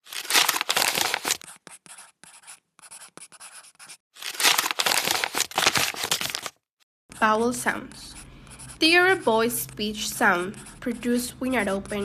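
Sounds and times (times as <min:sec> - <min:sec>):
scratchy rustling: 0:00.1 - 0:02.1.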